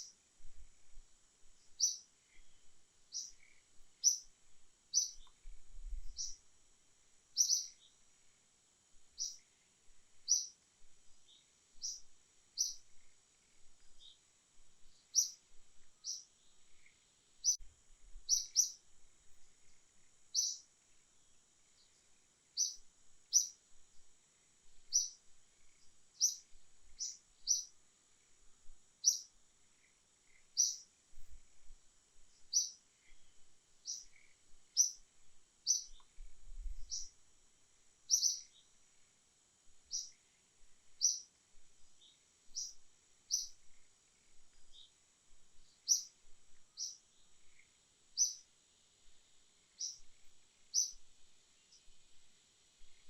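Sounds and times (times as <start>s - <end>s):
faint high hum: 0.0s - 53.0s
bird chirping: 1.6s - 6.4s, 7.3s - 8.0s, 9.2s - 9.6s, 10.2s - 14.2s, 14.8s - 17.6s, 18.3s - 18.8s, 19.6s - 23.6s, 24.8s - 27.8s, 29.0s - 30.9s, 32.3s - 37.2s, 38.1s - 38.8s, 39.9s - 40.3s, 40.9s - 41.3s, 42.0s - 45.0s, 45.6s - 48.5s, 49.7s - 52.0s.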